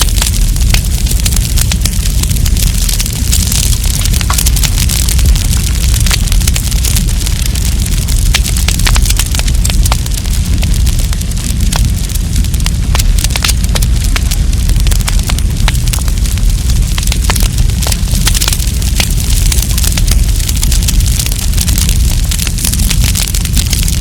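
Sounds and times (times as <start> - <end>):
campfire crackling and popping: 0.0 - 24.0
low rumble: 0.0 - 24.0.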